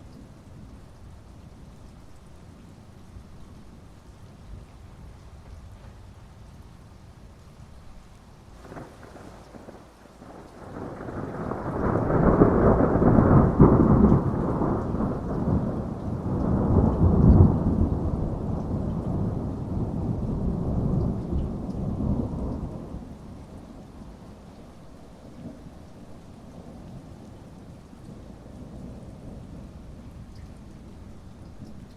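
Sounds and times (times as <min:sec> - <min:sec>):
heavy rain: 0:00.0 - 0:31.9
thunder rumbling: 0:08.6 - 0:24.4.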